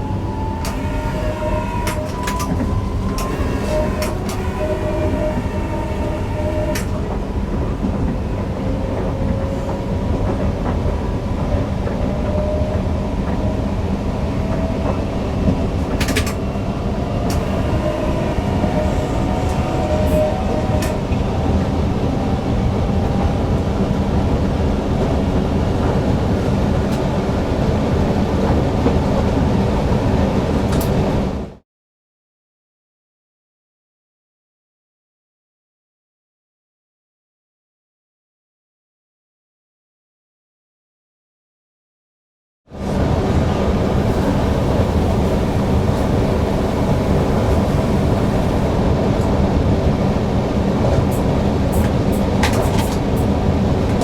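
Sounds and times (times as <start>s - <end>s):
wheels rumbling on rail: 0.0s - 31.6s, 42.7s - 54.0s.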